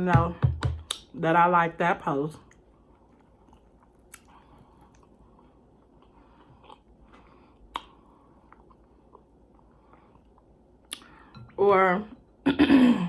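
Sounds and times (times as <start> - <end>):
person chewing food: 2.5 - 11.3.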